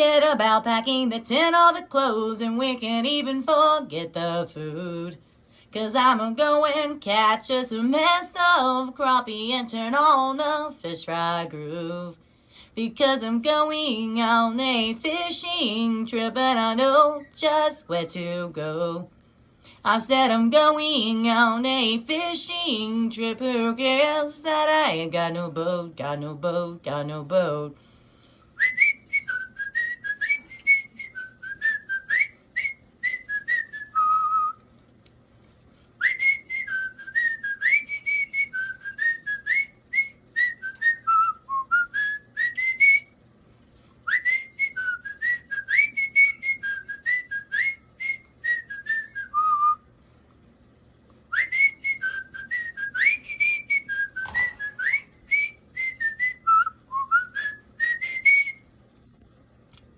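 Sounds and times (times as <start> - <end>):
person whistling a tune: 28.6 - 34.6, 36.0 - 43.1, 44.0 - 49.8, 51.3 - 58.6.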